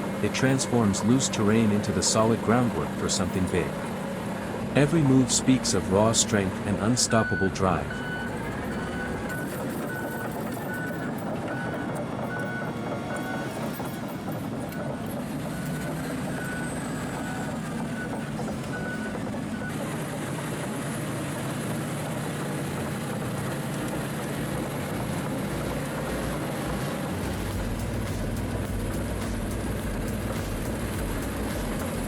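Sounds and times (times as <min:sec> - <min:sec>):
deep engine rumble: 0:00.0 - 0:32.0
heavy machine engine running: 0:00.0 - 0:32.0
reversing alarm beeping: 0:04.8 - 0:20.1.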